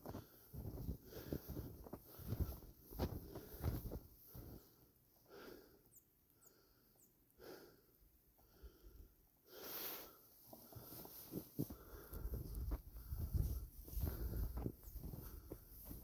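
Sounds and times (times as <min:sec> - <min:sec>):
footsteps crunching in snow: 0:00.0 - 0:04.8, 0:10.4 - 0:16.0
person breathing hard: 0:00.1 - 0:02.6, 0:04.4 - 0:15.6.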